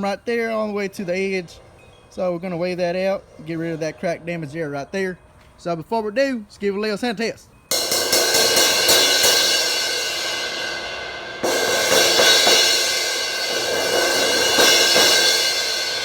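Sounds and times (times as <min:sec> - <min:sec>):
raspy crash cymbal hits: 0:07.7 - 0:16.0.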